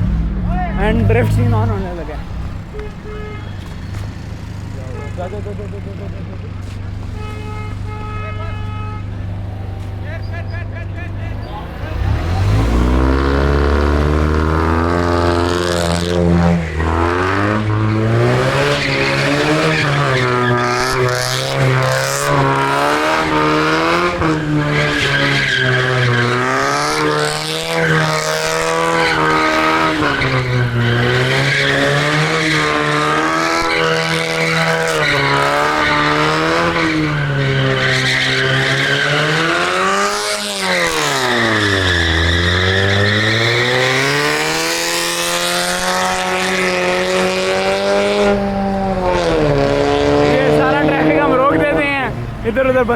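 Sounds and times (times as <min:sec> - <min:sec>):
tyres squealing: 0:00.9 - 0:52.9
car engine revving hard: 0:11.4 - 0:52.9.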